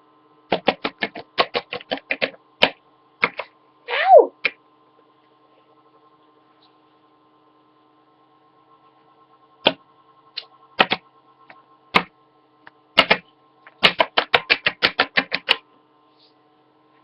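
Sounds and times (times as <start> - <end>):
plastic toy tapping on hard surface: 0.5 - 3.4, 13.0 - 15.6.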